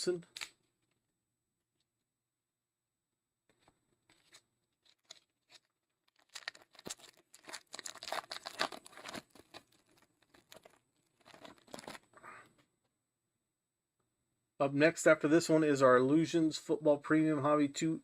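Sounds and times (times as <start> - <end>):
plastic wrapping tearing and crinkling: 4.2 - 12.1.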